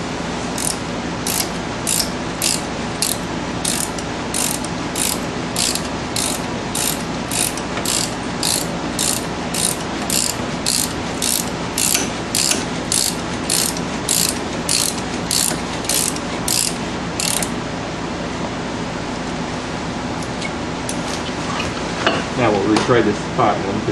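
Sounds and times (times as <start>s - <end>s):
ratchet wrench clicking: 0.6s - 17.5s.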